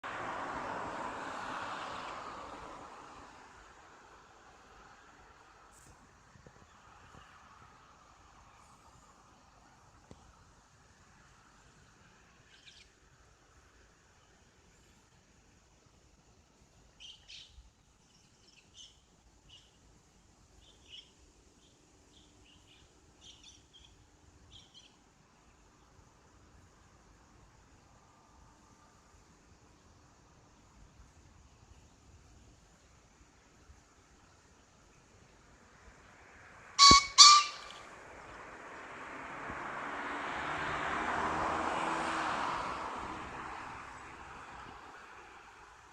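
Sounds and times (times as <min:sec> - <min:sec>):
faint bird chirps: 0:12.4 - 0:13.0, 0:16.9 - 0:19.8, 0:20.5 - 0:25.0, 0:36.8 - 0:37.9
pheasant crowing harshly: 0:36.8 - 0:37.8.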